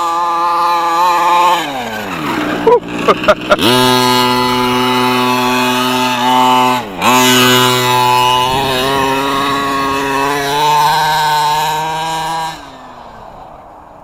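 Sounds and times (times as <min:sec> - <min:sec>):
model truck engine revving high: 0:00.0 - 0:13.7.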